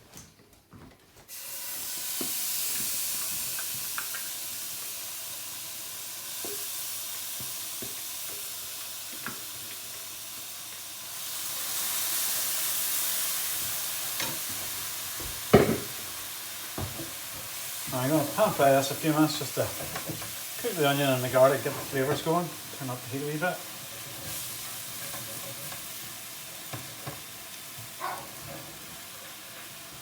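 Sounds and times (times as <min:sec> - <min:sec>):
paste sizzling in frying pan: 0:01.3 - 0:30.0
loud knock: 0:15.5 - 0:15.9.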